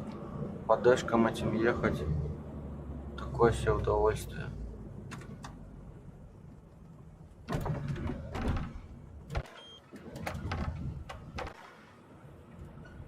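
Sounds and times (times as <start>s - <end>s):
low rumble of a truck cab: 0.0s - 13.0s
knocks and clicks in a cab: 7.4s - 11.6s.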